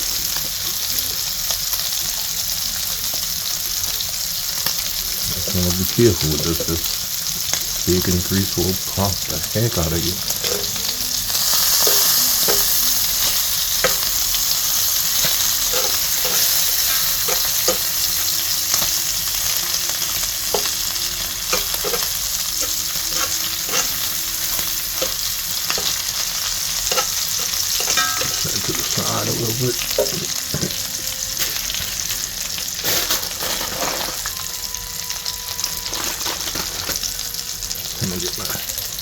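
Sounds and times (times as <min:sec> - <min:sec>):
bacon sizzling in a pan: 0:00.0 - 0:39.0
grease popping: 0:05.0 - 0:34.4.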